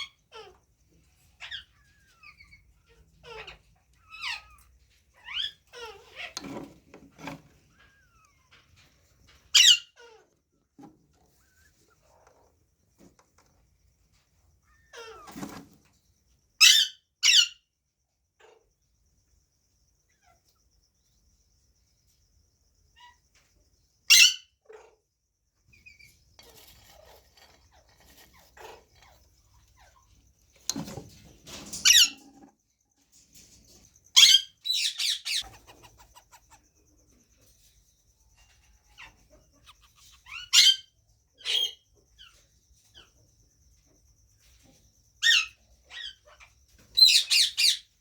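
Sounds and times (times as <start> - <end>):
parakeets squawking: 9.6 - 10.0.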